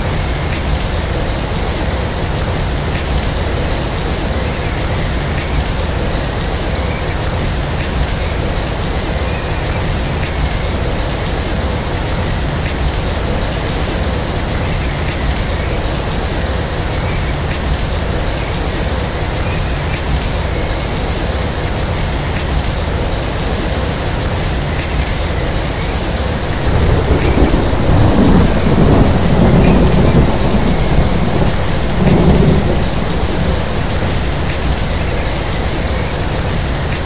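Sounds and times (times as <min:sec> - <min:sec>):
steady rain falling: 0:00.0 - 0:37.0
low rumble of thunder: 0:26.4 - 0:37.0.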